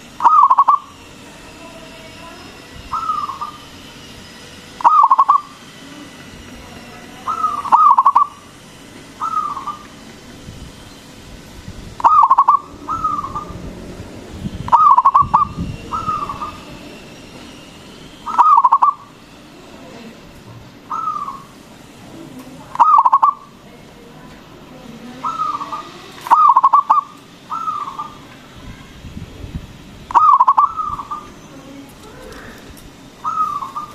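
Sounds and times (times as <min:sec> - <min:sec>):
dove cooing: 0:00.2 - 0:01.0, 0:02.8 - 0:03.7, 0:04.8 - 0:06.2, 0:07.2 - 0:08.5, 0:09.2 - 0:10.0, 0:12.0 - 0:13.7, 0:14.7 - 0:16.8, 0:18.2 - 0:19.1, 0:20.9 - 0:21.5, 0:22.7 - 0:23.5, 0:25.2 - 0:28.3, 0:30.1 - 0:31.4, 0:32.1 - 0:33.9.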